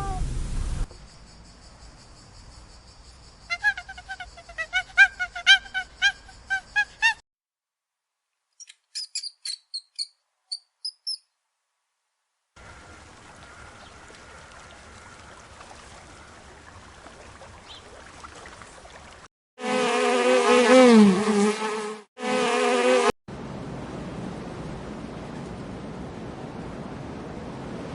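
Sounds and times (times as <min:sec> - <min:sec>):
flying insect buzzing: 0:03.0 - 0:07.2, 0:19.6 - 0:23.1.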